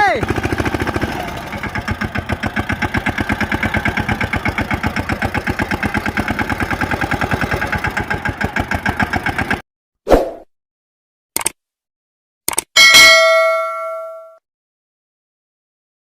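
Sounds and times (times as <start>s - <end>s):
tractor diesel engine idling: 0.0s - 9.6s.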